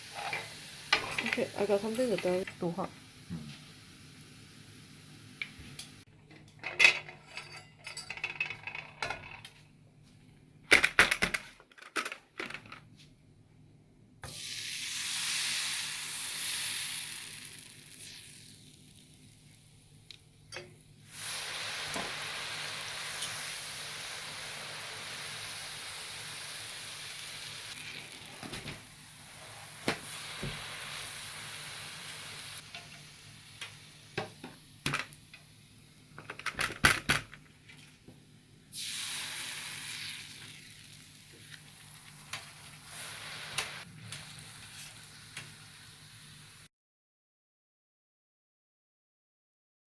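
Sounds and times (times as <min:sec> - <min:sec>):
hot oil sizzling: 0:00.0 - 0:06.1, 0:14.2 - 0:36.2, 0:38.7 - 0:46.7.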